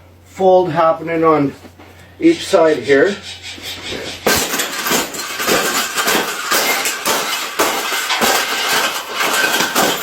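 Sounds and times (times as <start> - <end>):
cage rattling and clattering: 3.9 - 10.0
sharp knocks: 4.1 - 10.0.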